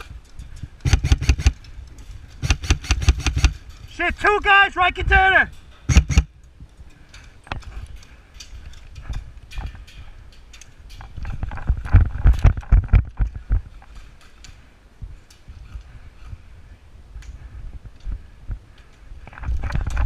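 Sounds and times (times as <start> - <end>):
knocks and thuds: 5.9 - 6.3.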